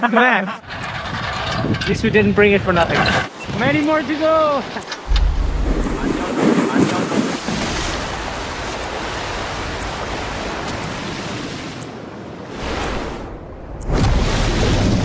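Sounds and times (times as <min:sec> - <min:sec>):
river water rushing: 0:05.0 - 0:11.7.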